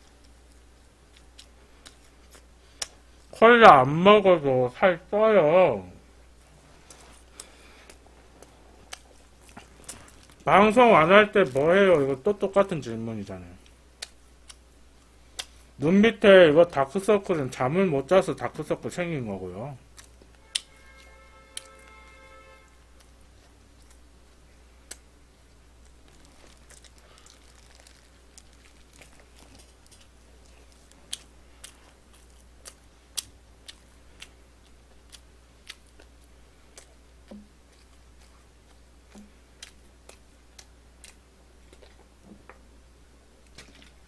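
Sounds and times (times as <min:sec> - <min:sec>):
low steady hum: 0:00.0 - 0:44.0
chewing crispy chicken: 0:06.8 - 0:12.3, 0:24.8 - 0:42.1.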